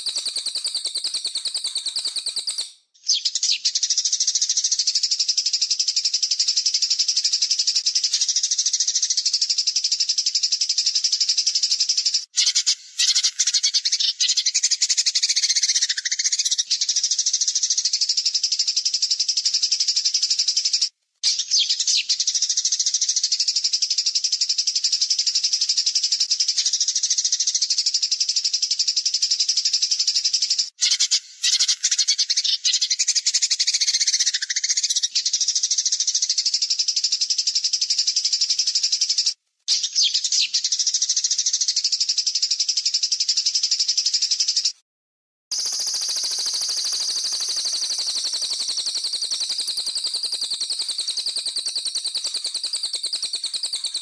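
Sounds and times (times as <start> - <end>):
songbird trilling: 0.0 - 18.1, 45.5 - 54.0.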